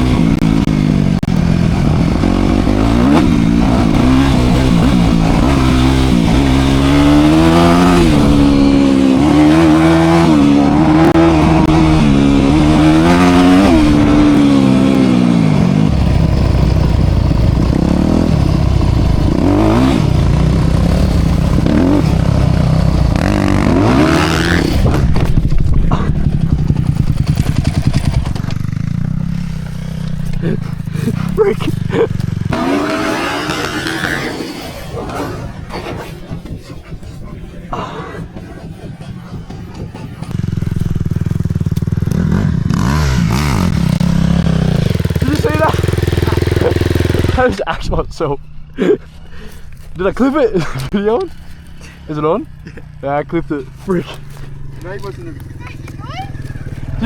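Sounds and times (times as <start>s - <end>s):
dirt bike engine revving: 0.0s - 36.6s, 37.3s - 47.7s, 50.0s - 57.0s.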